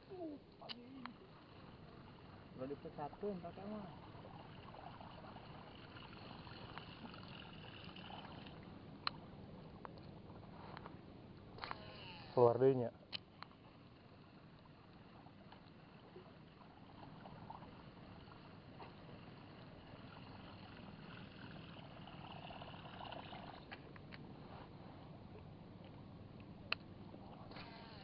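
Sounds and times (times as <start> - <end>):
water lapping: 0.0 - 28.0.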